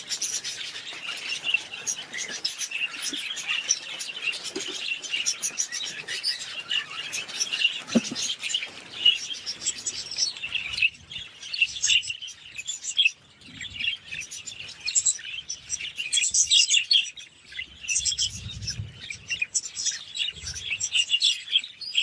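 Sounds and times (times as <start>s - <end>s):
budgerigars chattering: 0.0s - 10.9s.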